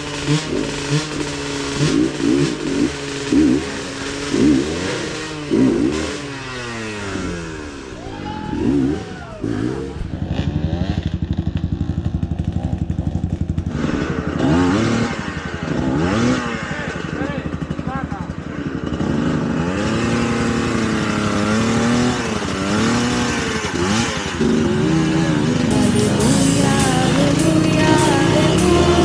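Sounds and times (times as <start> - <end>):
motorcycle engine idling: 0.0 - 29.0
motorcycle engines revving: 0.0 - 29.0.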